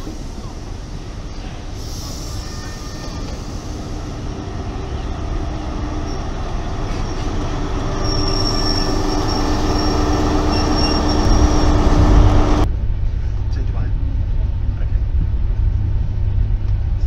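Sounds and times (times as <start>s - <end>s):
train coaches rumbling: 0.0s - 12.7s
diesel engine: 3.3s - 12.7s.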